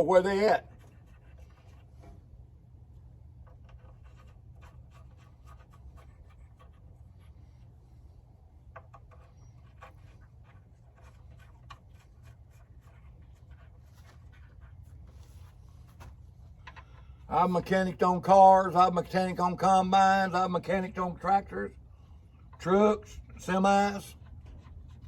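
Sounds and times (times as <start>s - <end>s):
steady low hum: 0.0s - 25.0s
bolts clicking and scraping: 15.9s - 17.5s.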